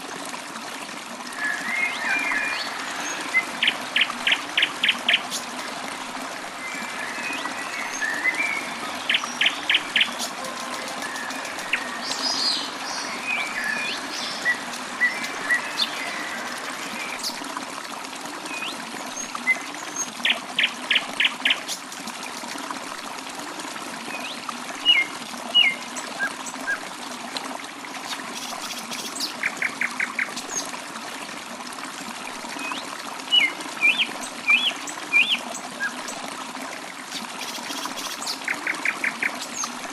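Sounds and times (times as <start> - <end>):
water trickling: 0.0 - 39.9
birds chirping: 6.5 - 17.4
bird repeated notes: 7.4 - 12.7.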